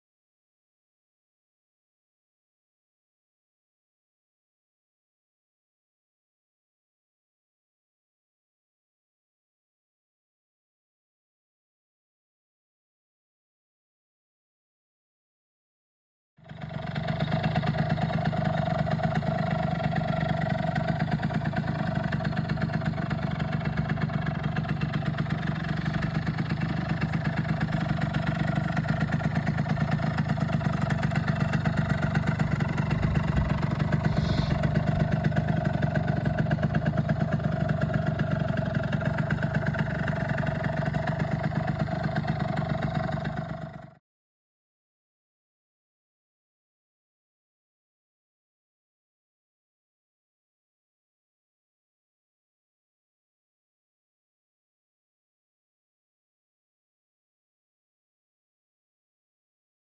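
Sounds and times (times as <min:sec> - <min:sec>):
scooter two-stroke engine running: 0:16.4 - 0:44.0.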